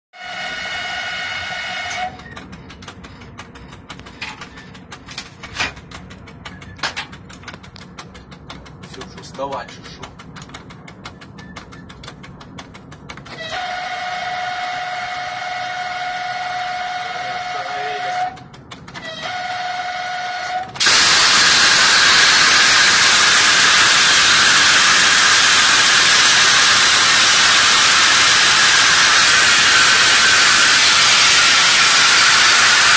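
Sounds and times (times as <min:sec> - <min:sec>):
train brake hissing: 0:00.2 - 0:02.2, 0:13.3 - 0:18.4, 0:19.0 - 0:32.9
train horn blasts: 0:00.2 - 0:02.2, 0:13.3 - 0:32.9
faint rapid clicking: 0:02.2 - 0:13.3, 0:18.3 - 0:19.0.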